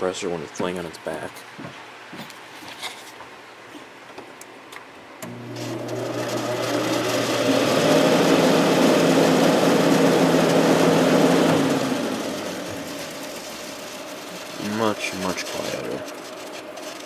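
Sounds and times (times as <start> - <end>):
air conditioner fan motor humming: 3.4 - 17.0
fan winding down: 5.2 - 17.0.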